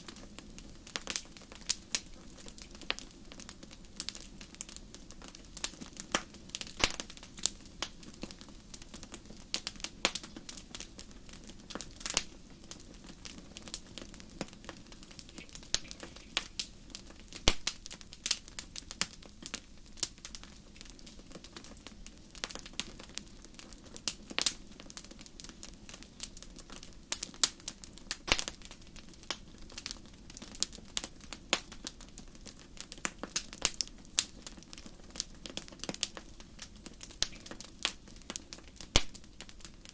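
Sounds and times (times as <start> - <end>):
fire pops and snaps: 0.0 - 39.9
hiss of burning fire: 0.0 - 39.9.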